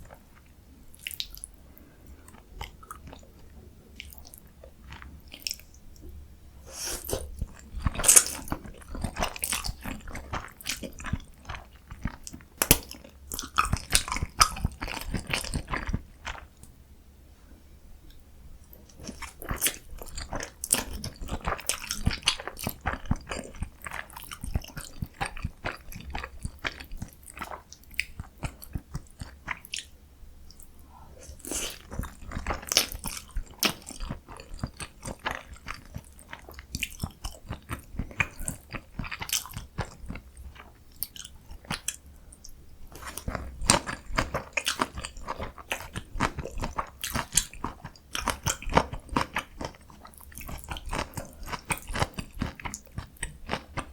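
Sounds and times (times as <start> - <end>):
person chewing and biting: 6.7 - 16.5, 31.2 - 42.0, 42.9 - 53.9.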